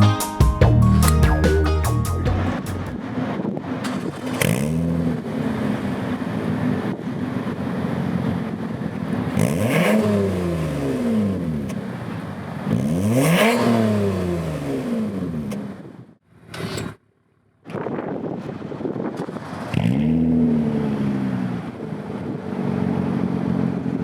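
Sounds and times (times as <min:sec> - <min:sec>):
car engine revving: 0:01.0 - 0:15.9.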